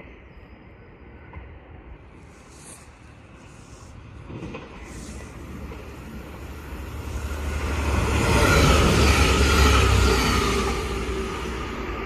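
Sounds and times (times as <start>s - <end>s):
passenger train passing: 0.0s - 12.0s.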